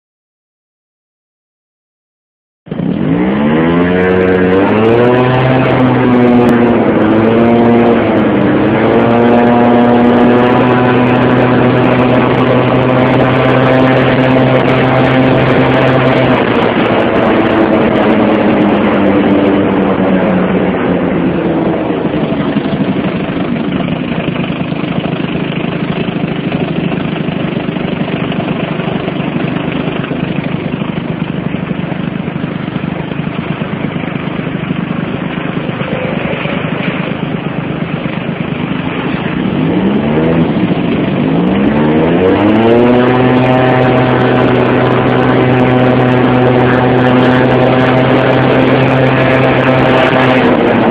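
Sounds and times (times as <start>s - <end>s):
motorcycle engine revving: 2.7s - 50.9s
rushing noise: 27.6s - 50.9s.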